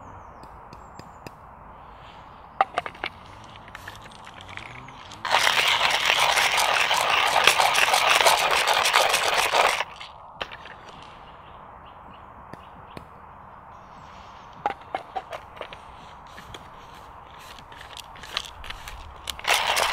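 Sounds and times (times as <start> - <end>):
hand coffee grinder crunching: 2.6 - 11.0, 14.7 - 19.9.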